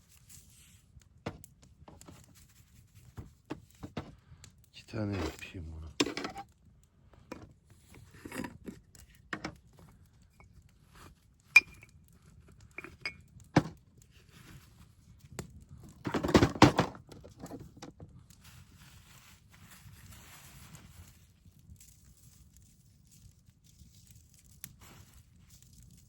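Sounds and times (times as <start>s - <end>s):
metal cooking gear clinking: 5.2s - 6.5s, 11.6s - 11.9s.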